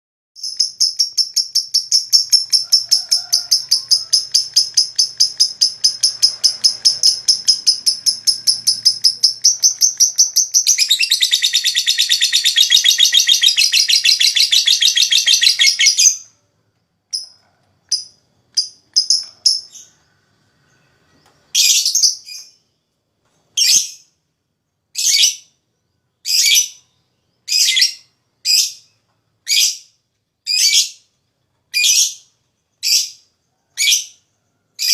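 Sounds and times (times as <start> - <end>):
lovebird rattling chatter: 0.4 - 16.2, 17.2 - 19.8
sharp bird calls: 0.4 - 23.0.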